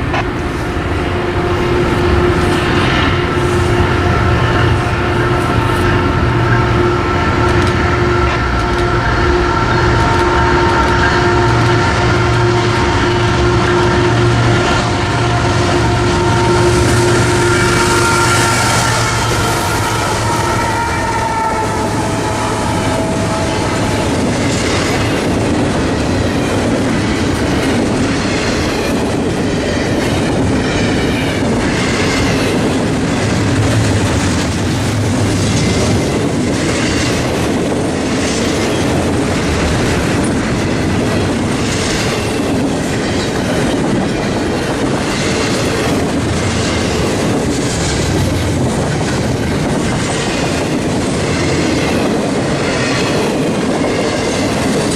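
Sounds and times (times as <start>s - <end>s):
steady tone: 0.0s - 26.0s
freight train wheels clickety-clack: 0.0s - 54.9s.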